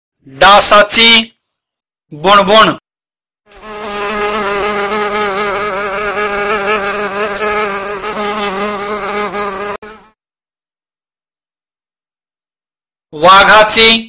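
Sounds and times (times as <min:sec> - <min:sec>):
mosquito buzzing: 0:03.5 - 0:10.2.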